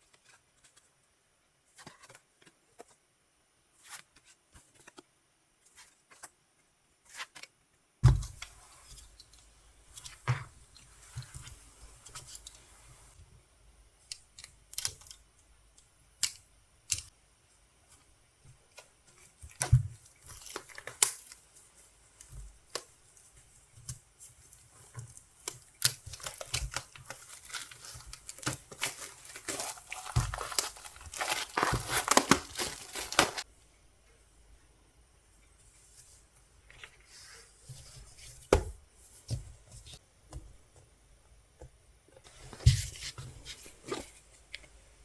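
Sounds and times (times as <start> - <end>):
packaging being torn and crinkled: 25.4 - 33.4.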